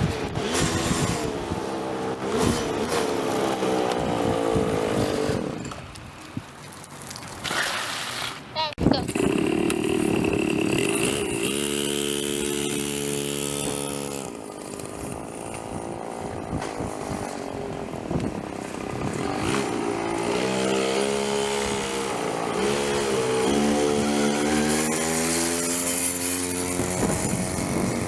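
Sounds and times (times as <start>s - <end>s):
motorcycle riding by: 9.0s - 28.0s.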